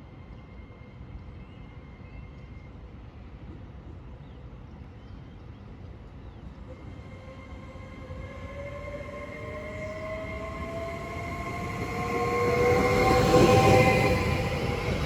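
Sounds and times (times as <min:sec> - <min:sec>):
train rumbling: 0:05.9 - 0:15.0
train whine rising in pitch: 0:06.6 - 0:15.0.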